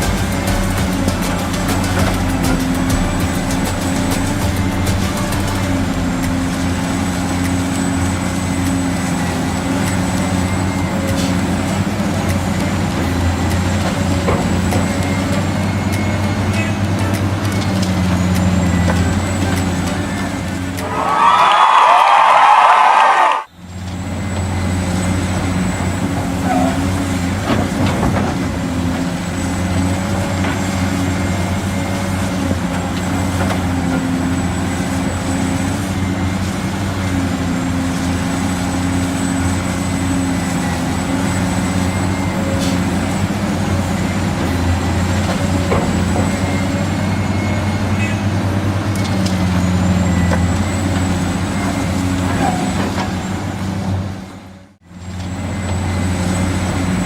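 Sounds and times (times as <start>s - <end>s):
high whine: 0.0s - 27.4s
truck engine droning: 0.0s - 57.0s.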